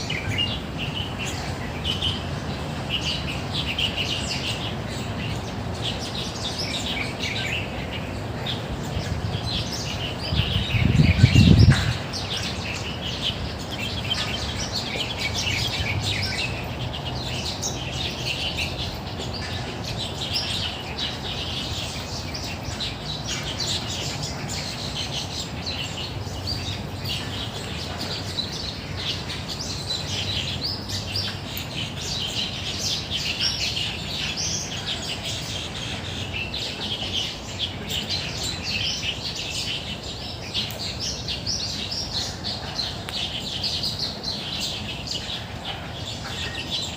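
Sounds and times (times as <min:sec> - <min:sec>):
small birds chirping: 0:00.0 - 0:46.9.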